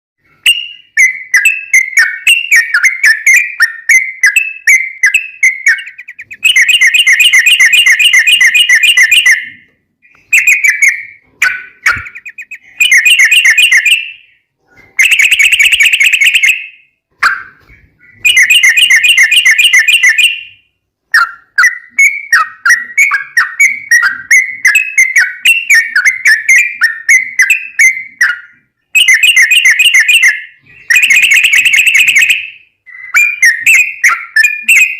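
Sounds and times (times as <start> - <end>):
bulbul singing with trills: 0.4 - 20.6.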